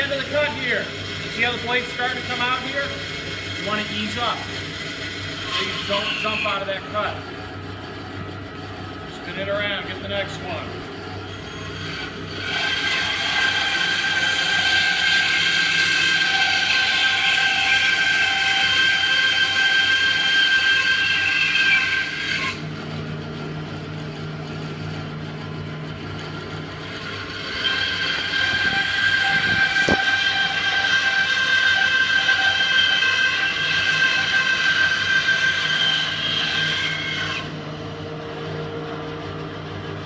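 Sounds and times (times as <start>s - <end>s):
bandsaw cutting wood: 0.0s - 7.2s, 11.3s - 22.6s, 26.8s - 37.6s.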